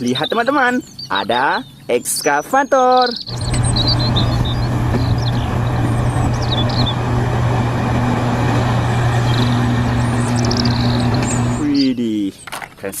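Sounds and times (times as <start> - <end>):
faint birds chirping: 0.0 - 13.0
pressure washer spraying water: 3.3 - 11.6.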